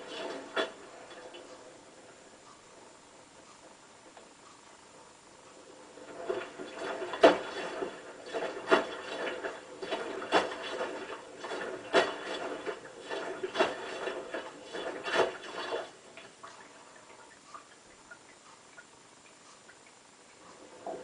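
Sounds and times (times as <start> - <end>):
washing machine drum tumbling: 6.2 - 15.8.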